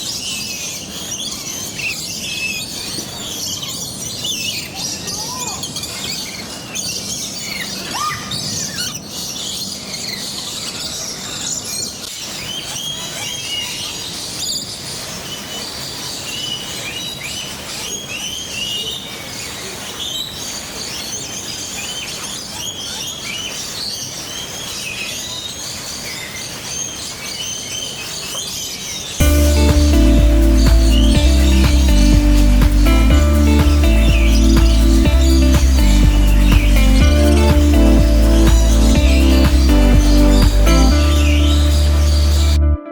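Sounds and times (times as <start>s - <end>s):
birds chirping and whistling: 15.3s - 42.8s.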